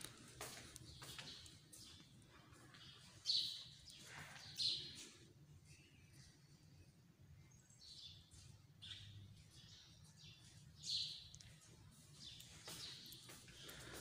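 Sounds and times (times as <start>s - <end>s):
birds chirping: 0.0s - 14.0s
faint outdoor background noise: 0.0s - 14.0s
loud bird calls: 12.4s - 14.0s.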